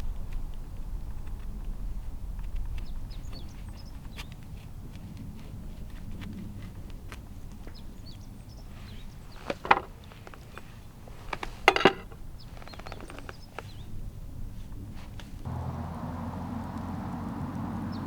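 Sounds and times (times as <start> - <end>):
sharp knocks and clatters: 9.4 - 10.6, 11.2 - 12.2.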